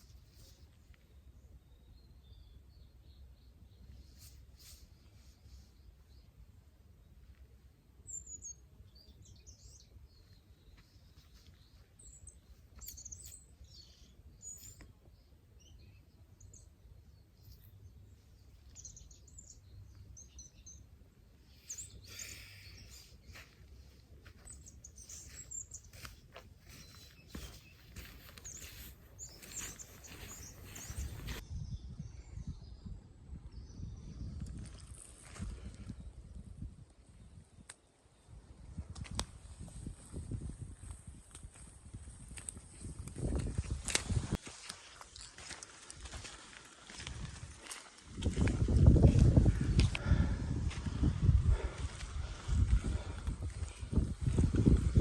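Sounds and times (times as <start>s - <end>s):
birds chirping: 8.0s - 31.4s
scuffing noises: 23.3s - 31.4s
wind rumble on microphone: 24.3s - 44.4s, 46.0s - 55.0s.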